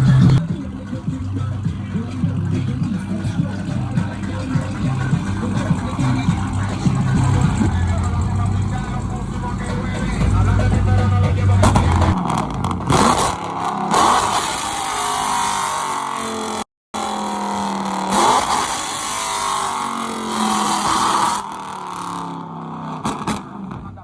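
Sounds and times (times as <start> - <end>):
vehicle engines revving past: 1.4 - 24.0.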